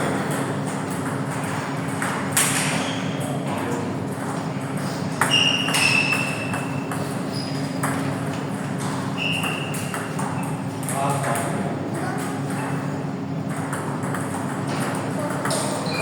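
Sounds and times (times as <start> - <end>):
steady hall hum: 0.0 - 16.0
short high squeaks: 5.2 - 7.7, 9.2 - 10.5.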